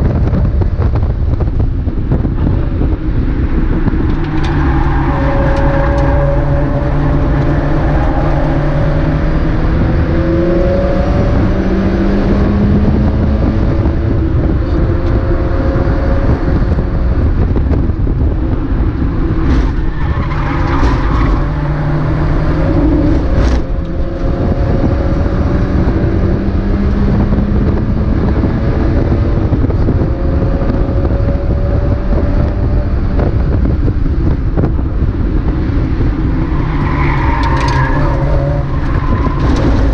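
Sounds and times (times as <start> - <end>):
road and wind noise: 0.0 - 39.9
race car engine revving: 1.9 - 39.9.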